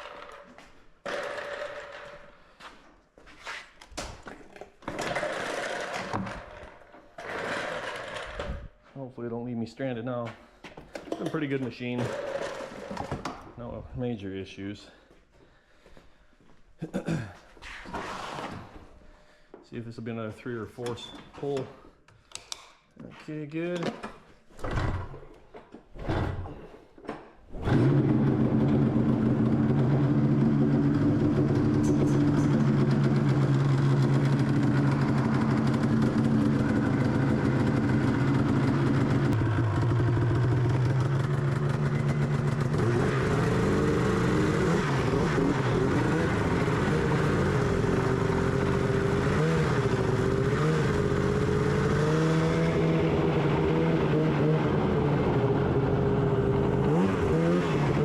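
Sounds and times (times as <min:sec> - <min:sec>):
snowmobile engine pull-start: 0:01.0 - 0:02.3, 0:04.9 - 0:08.7, 0:11.1 - 0:13.4, 0:27.5 - 0:58.0
snowmobile engine revving: 0:27.6 - 0:58.0
snowmobile engine idling: 0:27.8 - 0:53.8.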